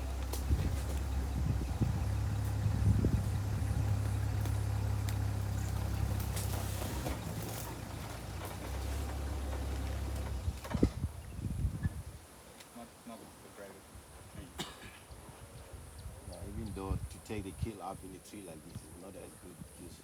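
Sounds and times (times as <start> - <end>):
vehicle engine running: 0.0 - 11.1.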